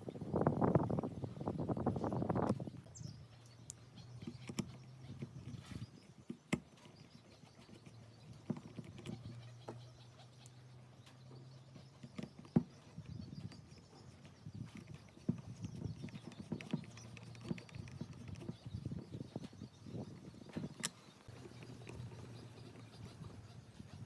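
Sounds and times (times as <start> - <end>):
light clicks and knocks: 11.0 - 18.7.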